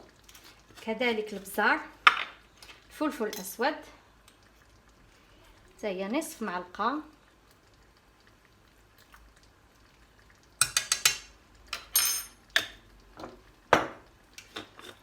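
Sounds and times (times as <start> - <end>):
metal spoon clinking against pot: 10.6 - 12.8.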